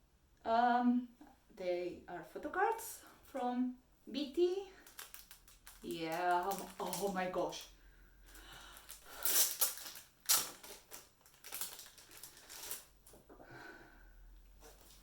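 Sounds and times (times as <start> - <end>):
packaging rustling and crackling: 4.8 - 7.7, 8.3 - 13.2, 14.6 - 15.0.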